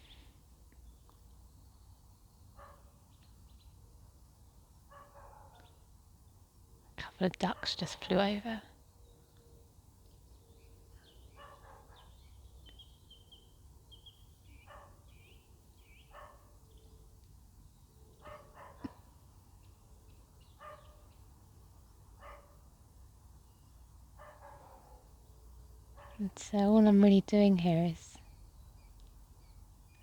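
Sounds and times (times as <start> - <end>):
small birds chirping: 0.0 - 30.0
faint dog barking: 2.6 - 3.0, 4.9 - 5.8, 11.3 - 12.2, 14.6 - 15.1, 16.1 - 16.6, 18.2 - 19.1, 20.6 - 21.1, 22.2 - 22.7, 24.2 - 25.2, 25.9 - 26.2.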